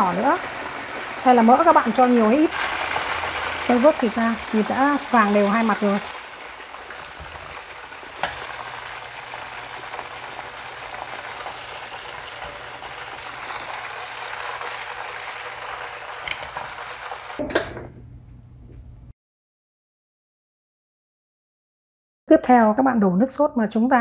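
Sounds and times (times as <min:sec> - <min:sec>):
meat sizzling in oil: 0:00.0 - 0:17.4.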